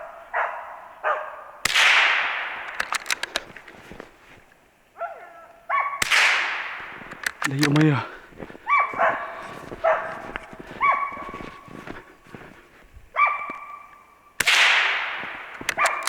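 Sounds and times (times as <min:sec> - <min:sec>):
dog barking: 0:00.0 - 0:01.6, 0:05.0 - 0:06.0, 0:06.9 - 0:14.1, 0:15.2 - 0:16.0
loud gunshot: 0:01.7 - 0:02.8, 0:06.0 - 0:07.3, 0:14.4 - 0:16.0.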